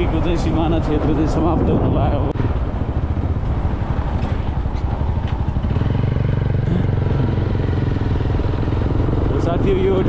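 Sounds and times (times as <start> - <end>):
road and wind noise: 0.0 - 10.0
motorcycle engine running: 2.4 - 10.0.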